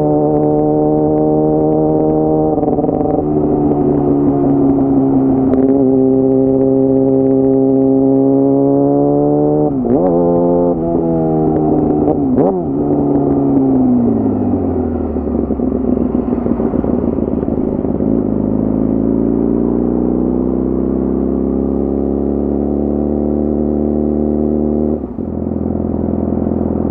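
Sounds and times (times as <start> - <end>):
sport bike engine revving: 0.0 - 14.3.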